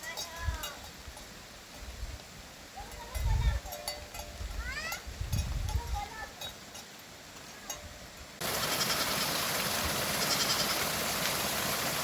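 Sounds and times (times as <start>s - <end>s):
running water: 0.0s - 12.0s
heavy rain: 8.4s - 12.0s.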